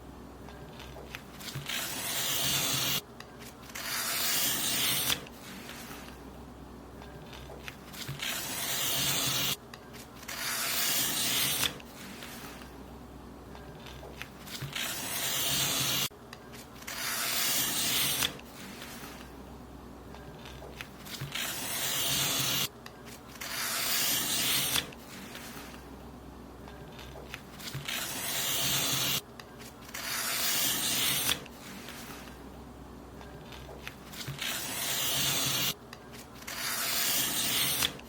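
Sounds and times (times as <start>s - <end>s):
paper being cut: 0.8s - 6.1s, 7.3s - 9.6s, 10.2s - 12.7s, 13.8s - 16.1s, 16.8s - 19.3s, 20.4s - 22.7s, 23.3s - 25.8s, 26.9s - 32.4s, 33.5s - 38.0s.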